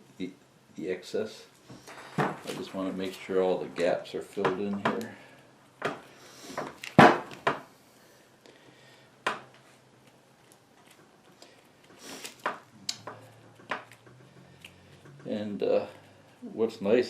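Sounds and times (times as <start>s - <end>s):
rubbing and handling noise: 1.5s - 7.5s, 9.5s - 17.0s.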